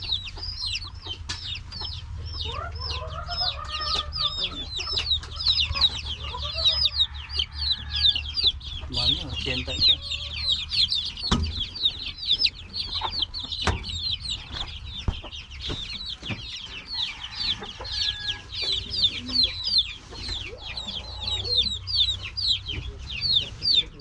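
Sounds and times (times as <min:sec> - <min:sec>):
chicks peeping: 0:00.0 - 0:24.0
sharp knocks: 0:11.2 - 0:11.7.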